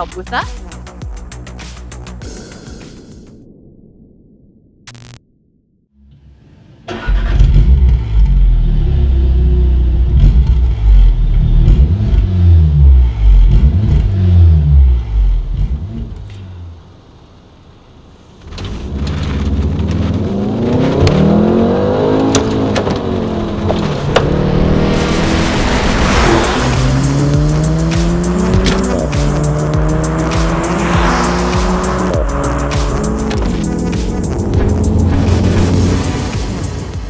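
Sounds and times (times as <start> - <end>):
car engine revving: 6.9 - 16.8, 18.4 - 37.0.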